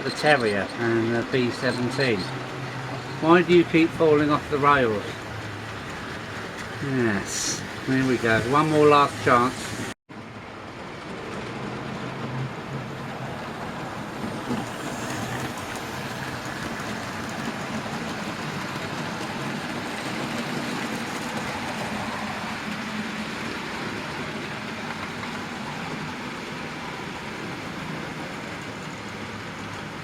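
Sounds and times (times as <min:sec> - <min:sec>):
metal wheels on track: 0:00.0 - 0:09.9.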